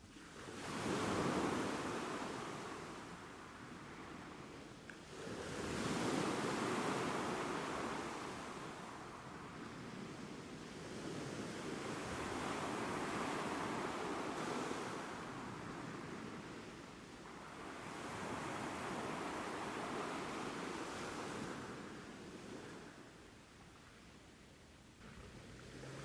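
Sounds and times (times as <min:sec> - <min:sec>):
ocean surf: 0:05.2 - 0:09.8, 0:11.4 - 0:23.2.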